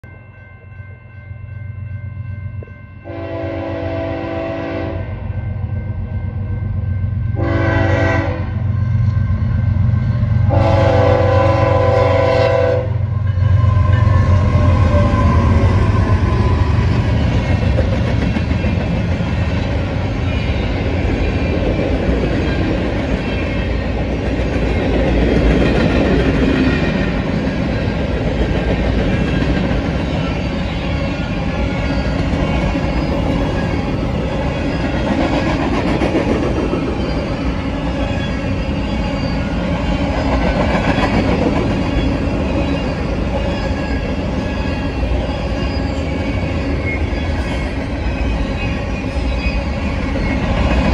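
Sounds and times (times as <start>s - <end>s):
diesel locomotive passing: 0.1s - 50.9s
freight cars rolling on rails: 13.1s - 50.9s.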